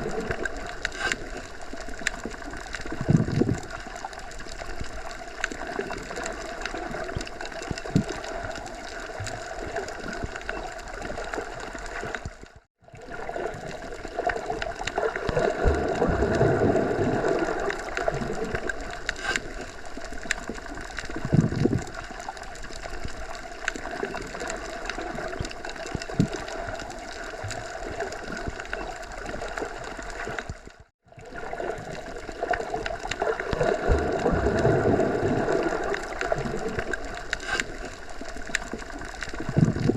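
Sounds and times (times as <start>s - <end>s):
small ticks: 38.4s - 39.7s.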